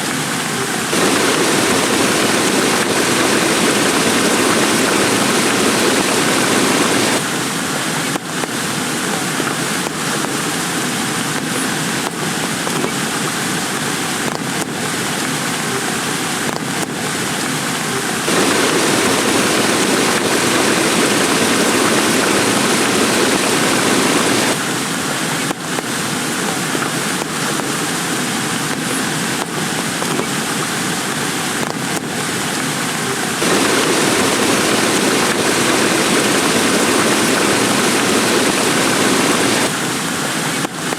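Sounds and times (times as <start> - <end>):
heavy rain falling: 0.2 - 40.9
sharp raindrop taps: 0.9 - 7.2, 18.3 - 24.6, 33.4 - 39.7.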